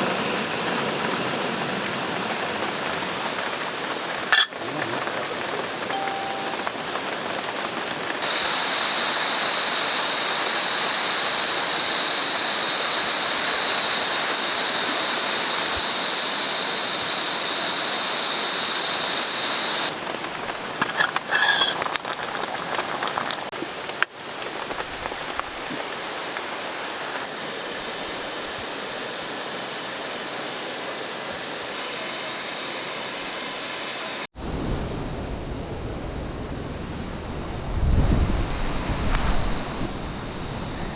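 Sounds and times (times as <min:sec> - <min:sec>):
steady rain falling: 0:00.0 - 0:33.4
high-pitched drone: 0:05.9 - 0:07.4.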